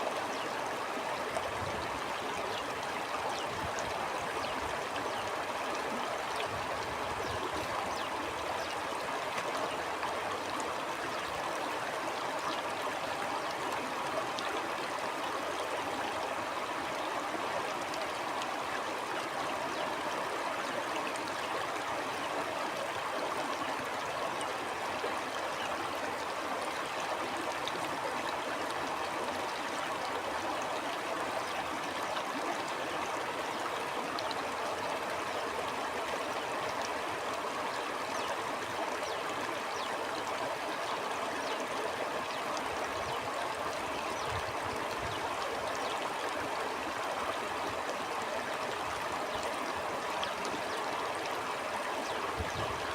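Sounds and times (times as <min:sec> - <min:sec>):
stream flowing over rocks: 0:00.0 - 0:52.9.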